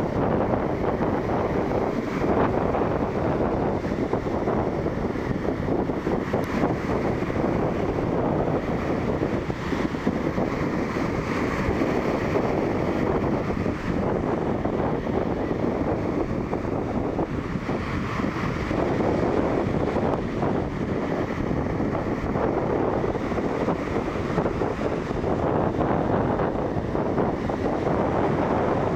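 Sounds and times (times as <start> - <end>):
storm waves breaking on shore: 0.0 - 28.9
wind blowing across microphone: 0.0 - 28.9.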